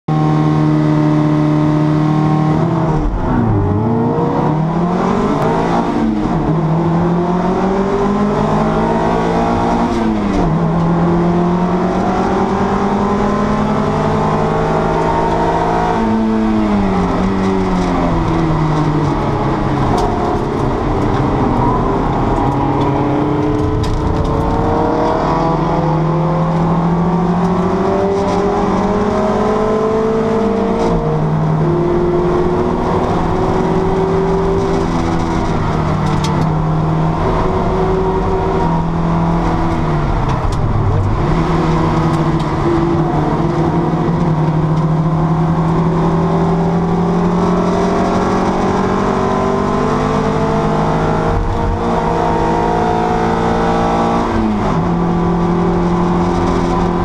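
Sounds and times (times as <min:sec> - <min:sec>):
racing car engine revving: 0:00.1 - 0:57.0.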